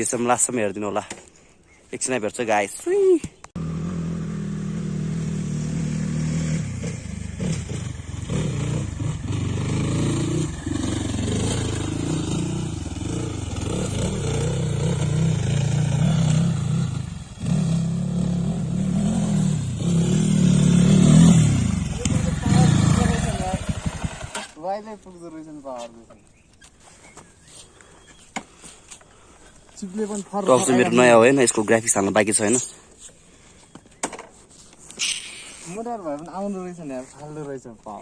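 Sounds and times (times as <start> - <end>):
motorcycle engine revving: 3.6 - 24.6.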